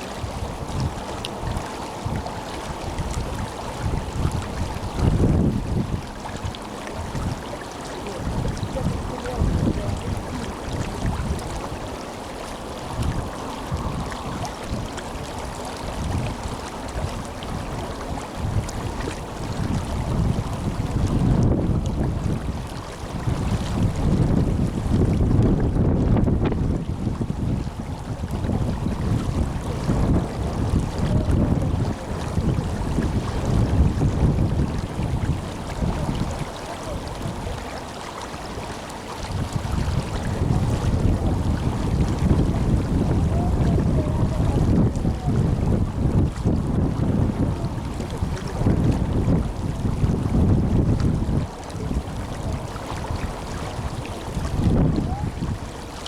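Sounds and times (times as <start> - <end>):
river water rushing: 0.0 - 56.0
wind buffeting microphone: 0.0 - 56.0.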